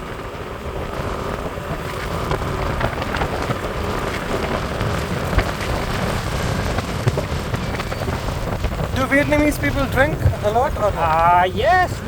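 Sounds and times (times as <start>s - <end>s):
bike ride rushing noise: 0.0s - 12.0s
small crackles and clicks: 0.0s - 12.0s.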